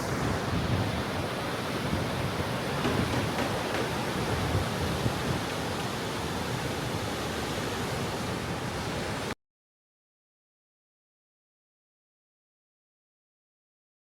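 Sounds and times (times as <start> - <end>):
strong wind on microphone: 0.0 - 5.8.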